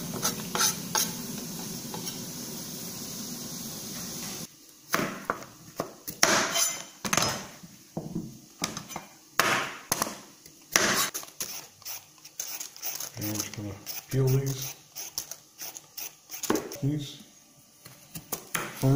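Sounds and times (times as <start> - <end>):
peeler scraping carrot: 11.0 - 16.8.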